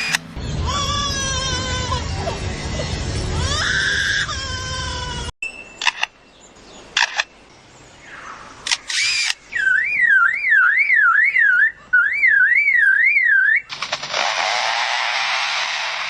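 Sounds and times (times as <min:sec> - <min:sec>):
lyrebird clicks: 0:05.8 - 0:06.2, 0:07.0 - 0:07.3, 0:08.6 - 0:09.6
lyrebird alarm-like whistle: 0:08.8 - 0:15.8.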